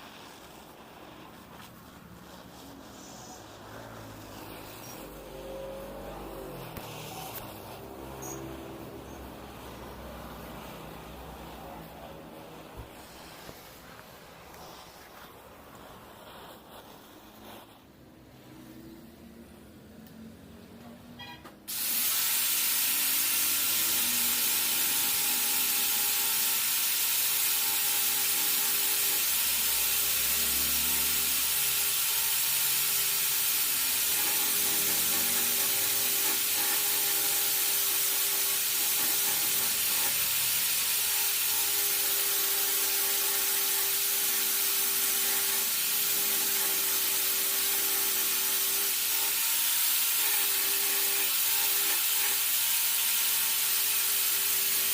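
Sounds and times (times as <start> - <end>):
welding torch flame hissing: 0.0 - 19.4, 21.7 - 54.9.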